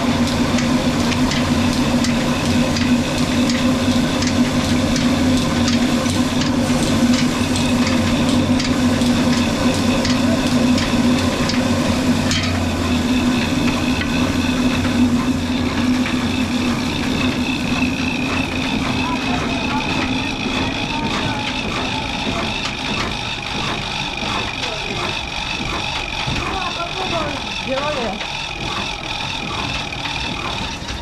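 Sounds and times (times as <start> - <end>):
diesel engine running: 0.0 - 31.0
regular ticking knock: 7.2 - 31.0.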